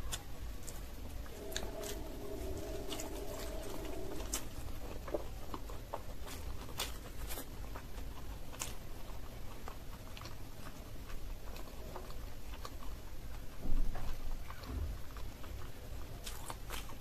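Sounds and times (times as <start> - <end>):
steady low hum: 0.6 - 6.7.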